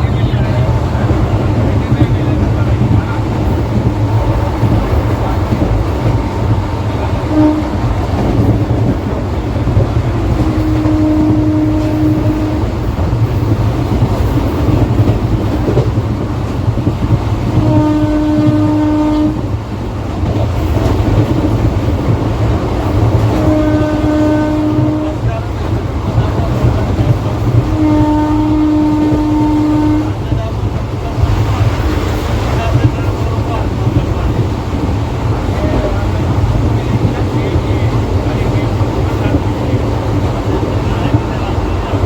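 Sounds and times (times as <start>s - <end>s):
train rumbling: 0.0s - 42.0s
train horn blasts: 7.1s - 13.0s, 17.4s - 19.6s, 22.9s - 25.6s, 26.6s - 30.6s.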